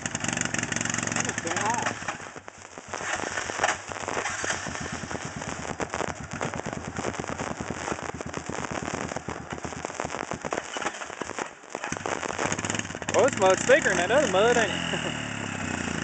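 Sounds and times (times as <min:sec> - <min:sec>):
off-road vehicle engine running hard: 0:00.0 - 0:02.2, 0:12.5 - 0:16.0
crackling popping exhaust: 0:00.0 - 0:16.0.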